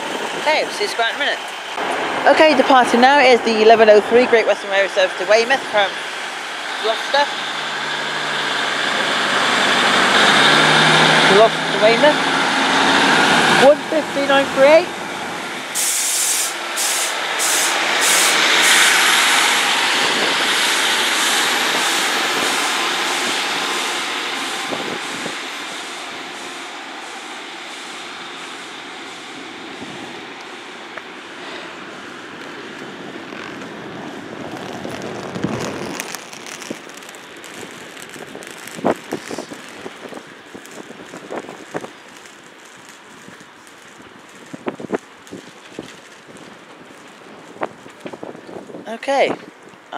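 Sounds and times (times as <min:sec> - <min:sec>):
diesel train engine accelerating: 0:00.0 - 0:48.9
wheels clicking on rails: 0:16.5 - 0:49.9.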